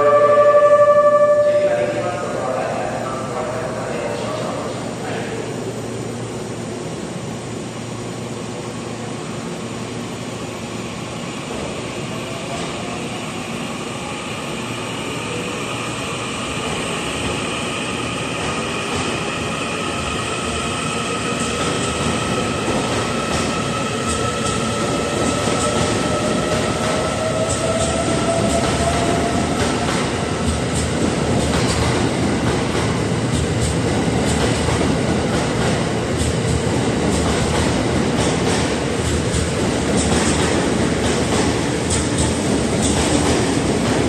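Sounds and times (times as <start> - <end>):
train traction whine: 0.0 - 44.0.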